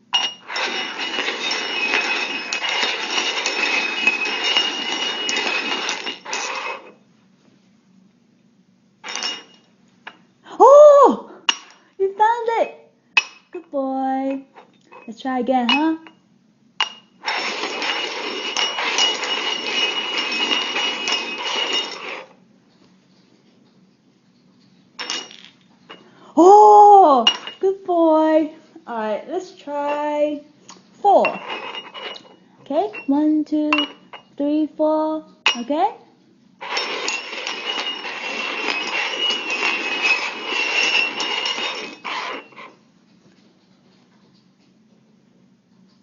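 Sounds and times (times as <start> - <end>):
hard cups sliding and clattering: 0.0 - 7.0, 9.0 - 10.2, 16.8 - 22.4, 25.0 - 26.2, 30.8 - 34.3, 36.6 - 44.1.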